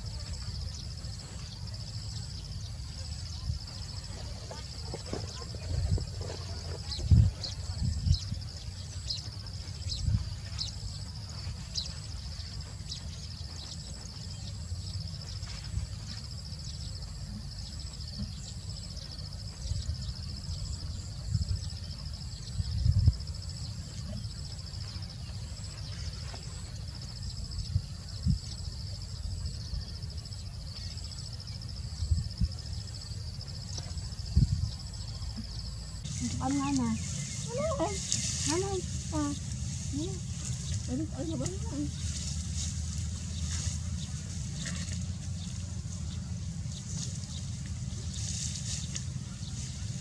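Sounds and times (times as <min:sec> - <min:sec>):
insect chorus: 0:00.0 - 0:50.0
low rumble: 0:36.0 - 0:50.0.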